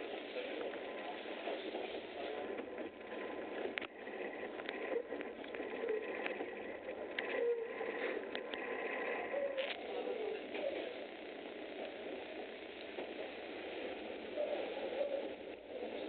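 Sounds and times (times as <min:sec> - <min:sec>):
train rolling rush: 0:00.0 - 0:10.9
faint steady whine: 0:00.0 - 0:16.0.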